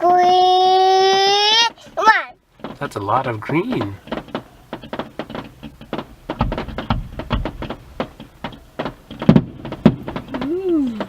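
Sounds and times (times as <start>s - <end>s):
fireworks crackling pops: 0.6s - 11.0s
deep firework booms: 3.3s - 11.0s.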